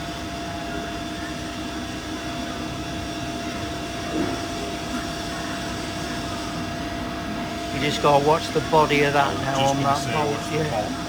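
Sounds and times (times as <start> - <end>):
mid-pitched machine whine: 0.0 - 11.0
milling machine humming: 4.8 - 11.0.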